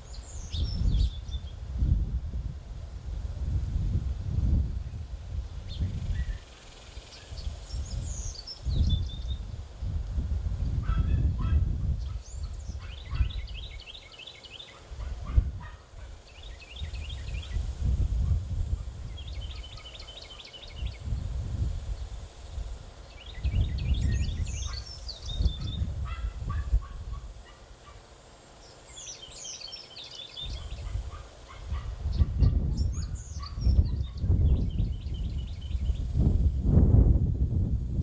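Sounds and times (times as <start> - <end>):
songbirds chattering trills: 0.0 - 1.7, 4.8 - 10.0, 10.6 - 36.3
low rumbling noise: 31.9 - 38.0.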